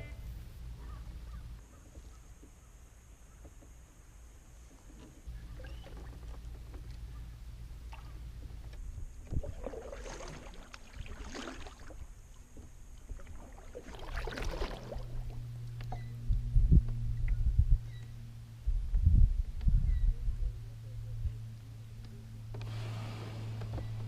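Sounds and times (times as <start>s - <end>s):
paddle strokes splashing: 9.2s - 15.4s
low rumble: 14.4s - 24.0s.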